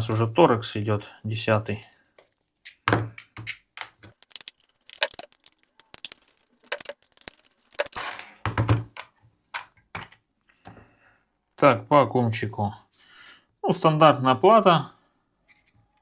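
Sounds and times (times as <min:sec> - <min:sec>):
plastic battery case clicks and scrapes: 0:03.2 - 0:08.0.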